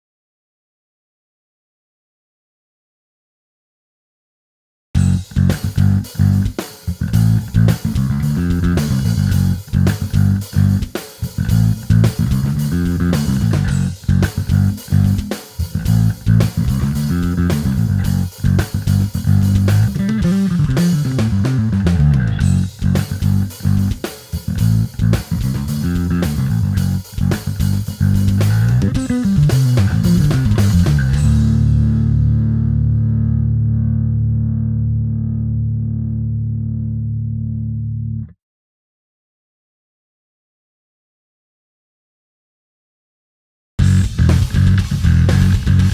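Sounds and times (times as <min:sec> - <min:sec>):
electric bass guitar riff: 0:05.0 - 0:38.3, 0:43.8 - 0:45.9.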